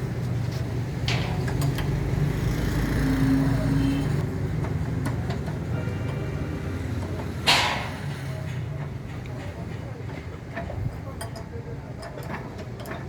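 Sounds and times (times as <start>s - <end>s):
sharp knock: 7.5s - 8.2s.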